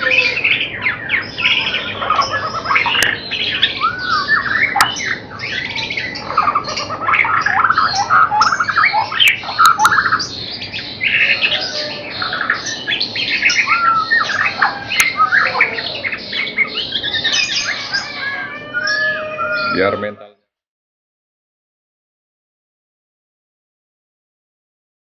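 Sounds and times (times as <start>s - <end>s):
birds singing whistles and trills: 0.0s - 20.0s.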